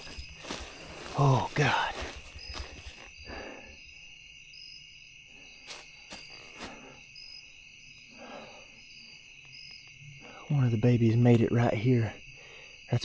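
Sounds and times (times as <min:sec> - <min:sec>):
soft rustles: 0:00.0 - 0:03.2
high insect chirp: 0:00.0 - 0:13.0
insect chorus drone: 0:00.0 - 0:13.0.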